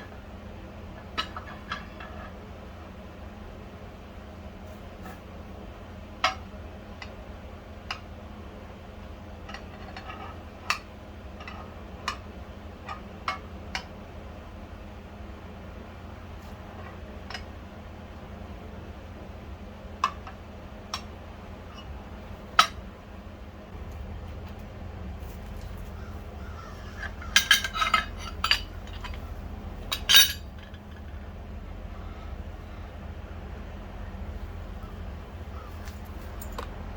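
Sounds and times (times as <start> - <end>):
steady low hum: 0.0 - 36.9
small metal parts clinking: 26.8 - 31.1, 35.8 - 36.7.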